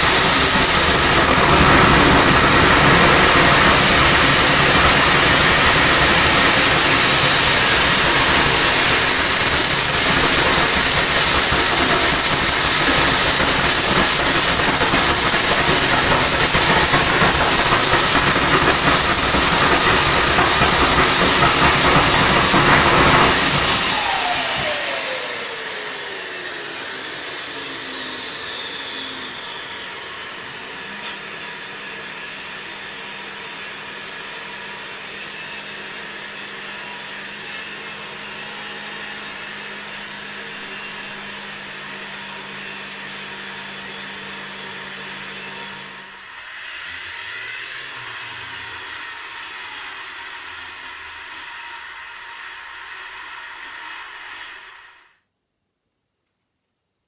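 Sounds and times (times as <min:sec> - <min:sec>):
model turbojet whine and rush: 0:00.0 - 0:34.0.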